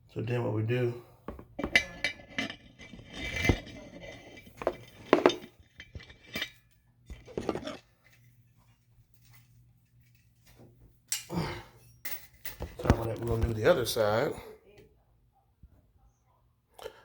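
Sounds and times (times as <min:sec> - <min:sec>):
metal tools clinking: 0:01.6 - 0:13.4.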